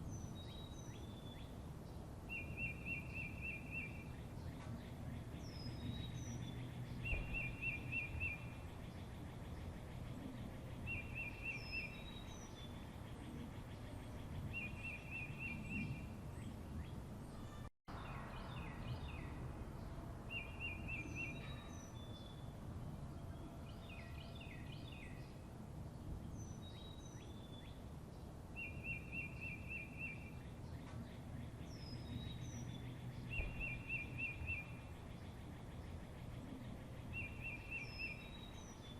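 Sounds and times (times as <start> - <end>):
high falling bird calls: 0.0 - 22.6, 26.3 - 38.9
small birds trilling: 0.1 - 17.7, 26.0 - 38.9.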